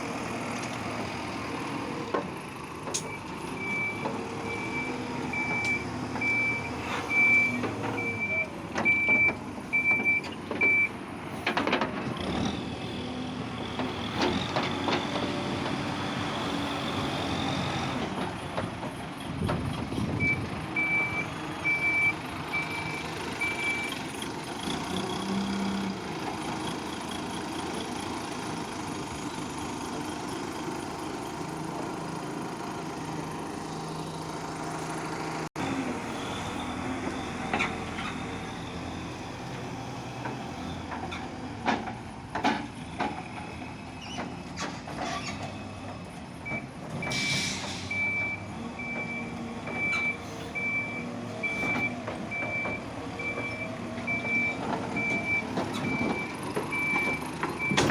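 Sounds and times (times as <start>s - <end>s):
diesel engine running: 0.0s - 57.9s
reversing alarm beeping: 3.1s - 11.0s, 20.2s - 24.0s, 47.9s - 57.9s.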